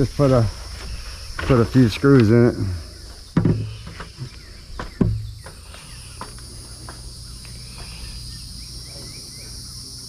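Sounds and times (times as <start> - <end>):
crickets chirping: 0.0 - 10.0
sharp knocks: 3.3 - 4.2, 4.8 - 5.6.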